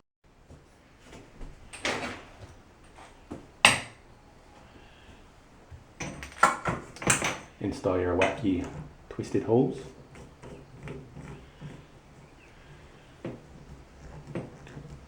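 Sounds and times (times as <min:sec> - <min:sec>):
clicking and clattering: 0:01.1 - 0:04.0, 0:06.0 - 0:07.6, 0:09.8 - 0:15.0
scraping rustle: 0:06.8 - 0:15.0.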